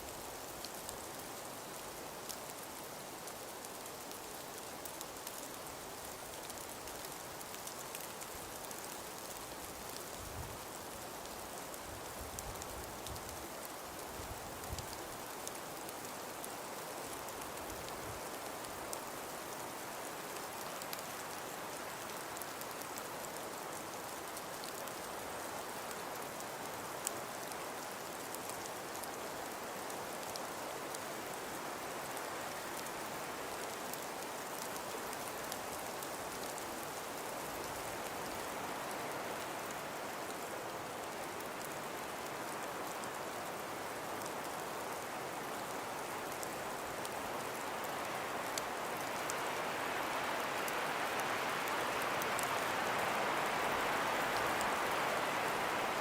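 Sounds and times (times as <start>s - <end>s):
wind-driven snow hiss: 0.0s - 56.0s.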